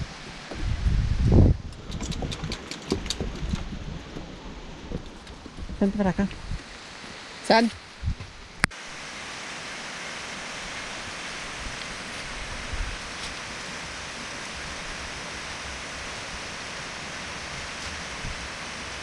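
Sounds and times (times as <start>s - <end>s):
waterfall rushing: 8.8s - 19.0s.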